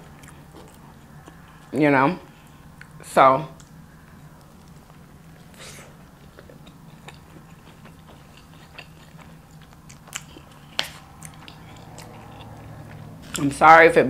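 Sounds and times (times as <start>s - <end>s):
close chewing with mouth clicks: 0.0s - 3.0s, 3.6s - 13.5s
lip smacking: 3.6s - 13.5s.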